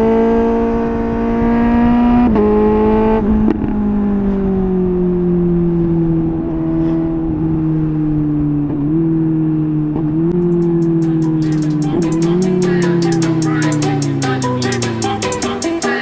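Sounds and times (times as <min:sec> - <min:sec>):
motorcycle engine: 0:10.2 - 0:16.0.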